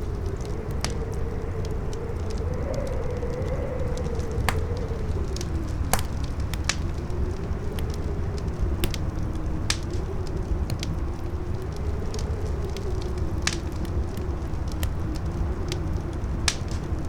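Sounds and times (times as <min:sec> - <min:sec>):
campfire crackling: 0:00.0 - 0:17.0
wind howling: 0:00.0 - 0:17.0.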